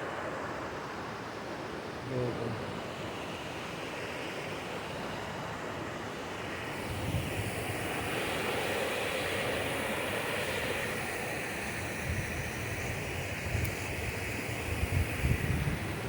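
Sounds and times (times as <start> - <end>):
wind rumble on microphone: 4.9 - 16.0.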